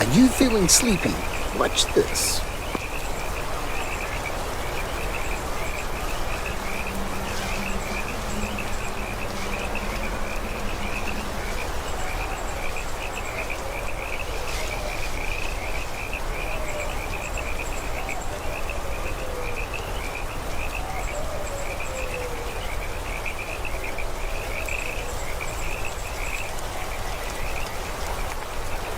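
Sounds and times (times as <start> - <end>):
even hiss: 0.0 - 3.0
frogs calling: 0.0 - 28.9
insects trilling: 0.0 - 28.9.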